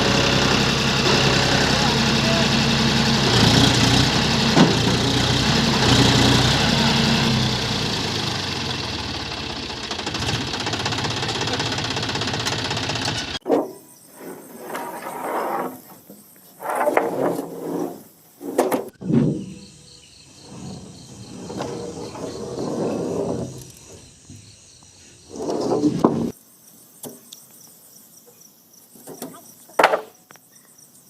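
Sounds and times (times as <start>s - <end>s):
people talking: 1.0s - 2.7s, 11.1s - 12.1s
crickets chirping: 13.4s - 31.0s.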